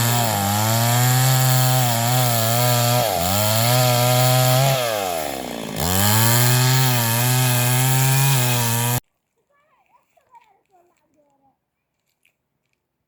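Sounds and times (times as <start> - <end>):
small engine running hard: 0.0 - 9.0.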